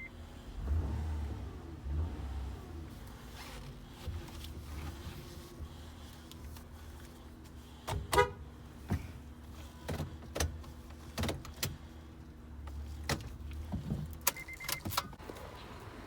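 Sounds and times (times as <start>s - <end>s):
brief beep: 14.3s - 14.9s.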